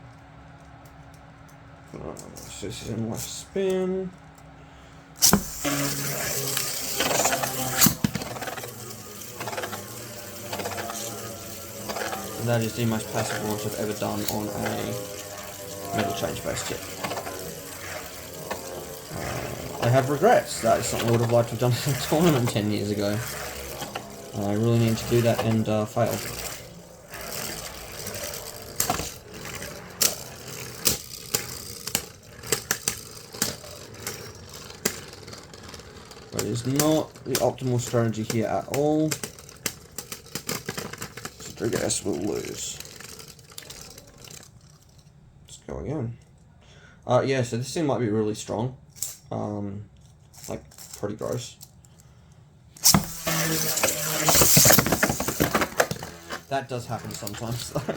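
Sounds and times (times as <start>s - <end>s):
spinning tops colliding: 5.2s - 34.2s, 52.8s - 56.4s
spinning tops rattling: 5.2s - 45.0s, 52.8s - 57.9s.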